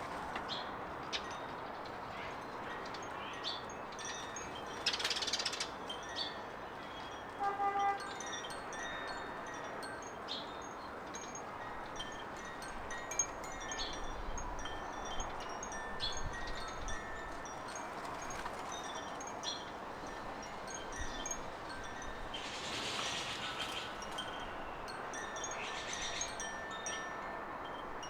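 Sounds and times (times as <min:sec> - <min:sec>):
birds chirping and twittering: 0:00.5 - 0:07.1, 0:20.7 - 0:27.0
steady background hiss: 0:08.4 - 0:28.0
ringing held bird notes: 0:20.7 - 0:28.0.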